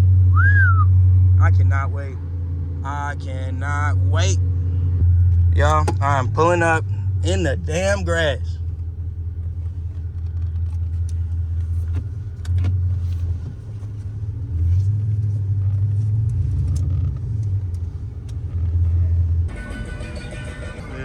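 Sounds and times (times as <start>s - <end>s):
car engine rumbling: 0.0s - 21.0s
music: 19.5s - 21.0s.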